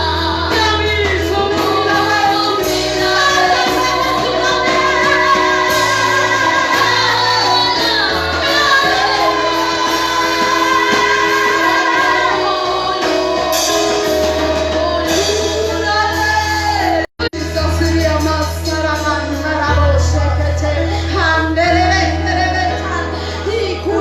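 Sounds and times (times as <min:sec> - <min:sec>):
voices singing: 0:00.0 - 0:17.1
instrumental accompaniment: 0:00.0 - 0:24.0.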